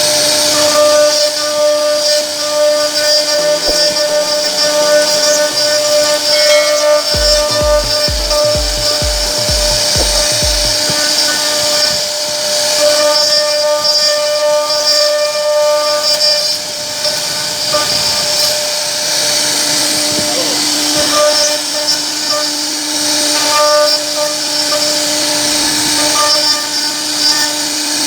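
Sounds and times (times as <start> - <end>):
router spindle cutting wood: 0.0 - 28.0
deep thumps: 7.2 - 11.2.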